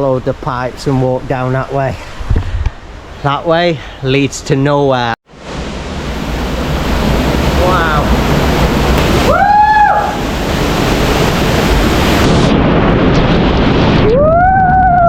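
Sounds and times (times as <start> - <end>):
waterfall rushing: 5.3 - 12.7.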